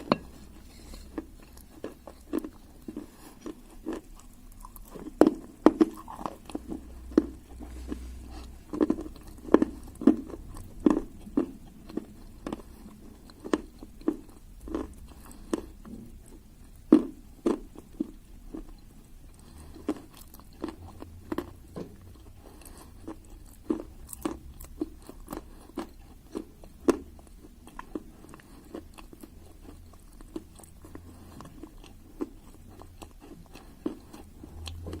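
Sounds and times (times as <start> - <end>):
soft chewing: 0.0 - 35.0.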